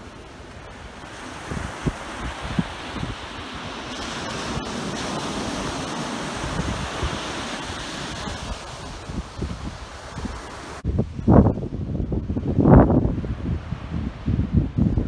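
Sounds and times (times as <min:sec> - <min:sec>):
sea water rushing: 0:00.0 - 0:10.8
wind buffeting microphone: 0:00.0 - 0:15.0.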